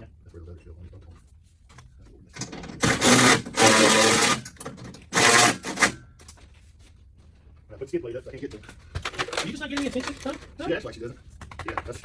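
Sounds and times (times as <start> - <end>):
power tool bursts: 2.8 - 6.0.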